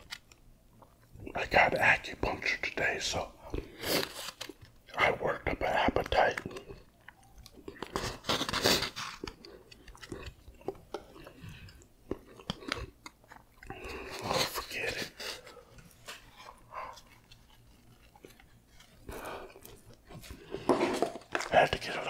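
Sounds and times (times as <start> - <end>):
wet chewing: 6.0 - 20.7.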